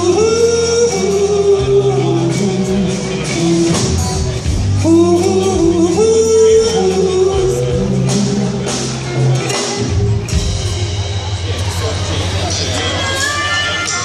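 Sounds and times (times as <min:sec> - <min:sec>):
sung vocals: 0:00.0 - 0:10.6
live rock band playing: 0:00.0 - 0:14.0.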